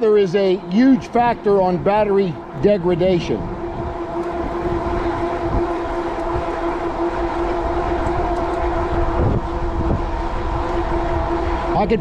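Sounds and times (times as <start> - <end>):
steady motor whine: 0.0 - 12.0
wind buffeting microphone: 0.0 - 12.0.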